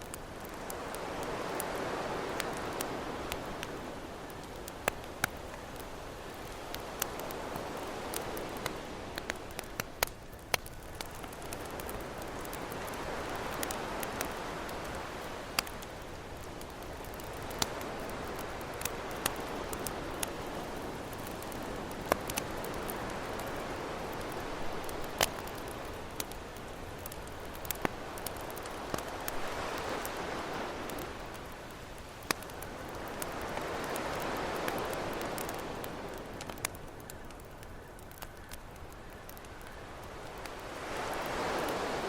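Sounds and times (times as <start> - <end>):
campfire crackling and popping: 0.0 - 42.0
ocean waves washing: 11.0 - 36.6, 40.1 - 42.0.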